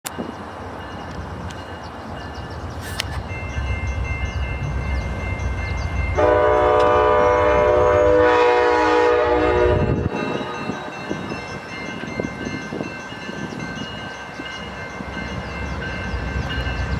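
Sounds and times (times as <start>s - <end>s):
train rumbling: 0.1s - 16.9s
train horn blast: 6.2s - 11.0s.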